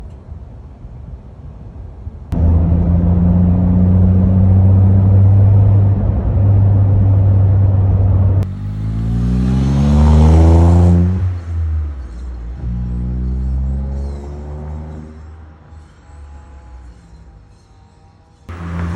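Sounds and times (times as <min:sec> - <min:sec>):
car engine drone accelerating: 0:02.3 - 0:17.4, 0:18.5 - 0:18.9.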